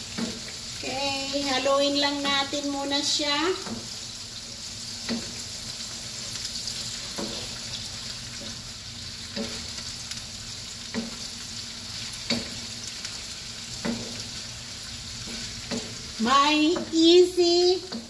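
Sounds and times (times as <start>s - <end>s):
chicken sizzling in oil: 0.0s - 18.0s
spatula knocking against pan: 5.0s - 5.4s, 9.3s - 9.7s, 10.9s - 11.2s, 12.2s - 12.6s, 13.8s - 14.2s, 15.3s - 16.0s, 16.6s - 17.0s, 17.8s - 18.0s.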